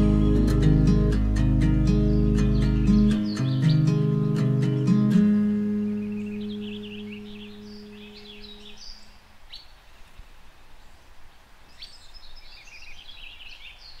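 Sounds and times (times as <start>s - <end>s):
guitar chord ringing: 0.0s - 8.8s
songbirds chirping: 0.0s - 14.0s.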